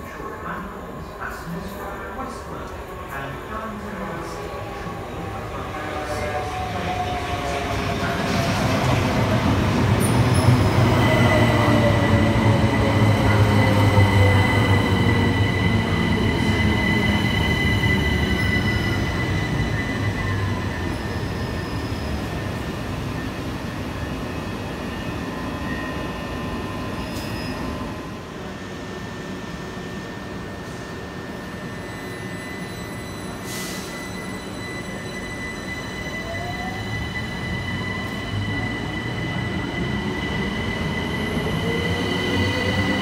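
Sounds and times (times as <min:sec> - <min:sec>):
electric train passing: 0:01.4 - 0:33.2
high wheel squeal: 0:31.4 - 0:39.8.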